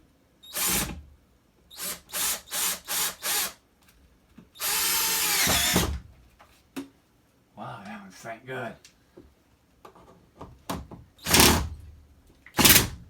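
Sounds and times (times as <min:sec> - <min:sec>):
cordless drill driving screw: 0:00.5 - 0:01.0, 0:01.8 - 0:03.6, 0:04.6 - 0:05.9, 0:11.2 - 0:11.7, 0:12.6 - 0:12.9.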